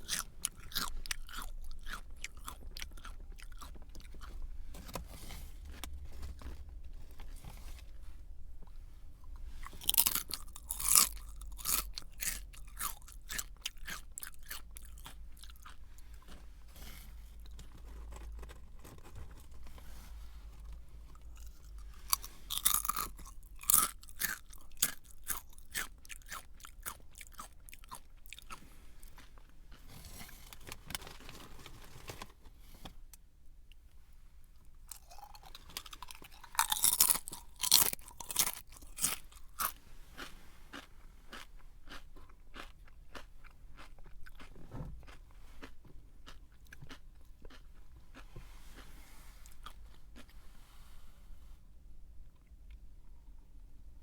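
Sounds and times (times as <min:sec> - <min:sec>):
person chewing crunchy snack: 0:00.0 - 0:04.5, 0:09.2 - 0:19.9, 0:20.5 - 0:31.4, 0:34.8 - 0:50.4.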